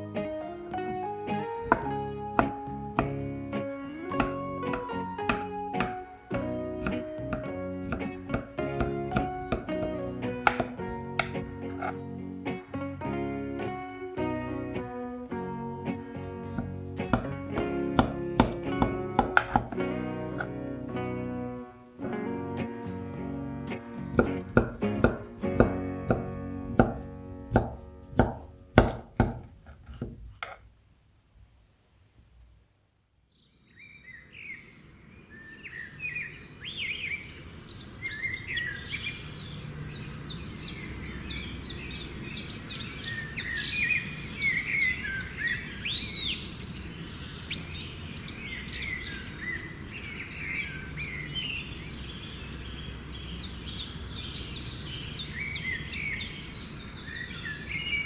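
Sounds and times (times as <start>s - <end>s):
plucked guitar music: 0.0s - 28.9s
birds chirping and singing: 0.7s - 12.6s, 33.3s - 58.0s.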